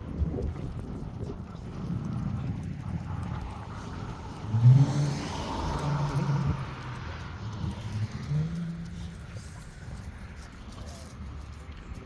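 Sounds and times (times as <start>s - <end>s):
car accelerating past: 3.4s - 9.6s.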